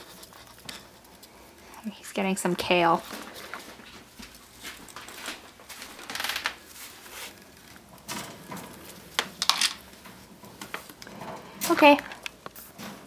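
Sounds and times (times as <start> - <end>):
rats rustling and scratching: 0.0 - 13.0.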